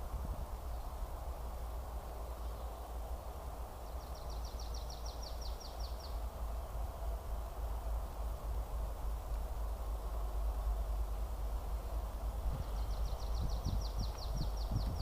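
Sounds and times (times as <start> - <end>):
low rumble and hiss: 0.0 - 15.0
songbird trill: 2.0 - 7.3, 11.8 - 15.0.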